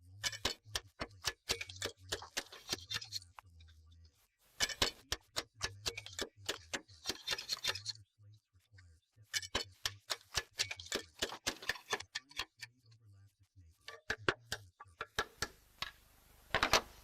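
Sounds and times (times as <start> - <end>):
hammer tapping slate: 0.2 - 3.2, 4.6 - 8.0, 9.4 - 12.7, 13.9 - 16.0.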